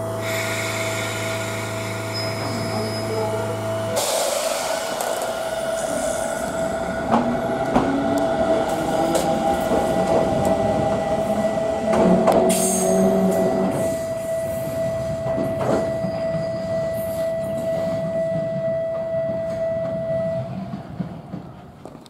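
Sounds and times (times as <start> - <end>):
electric train pulling away: 0.0 - 21.8
high-pitched wheel squeal: 2.0 - 4.9.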